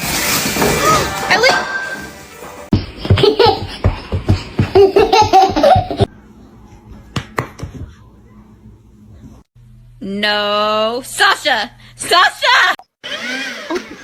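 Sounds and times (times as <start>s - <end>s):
person laughing hard: 2.9s - 6.1s.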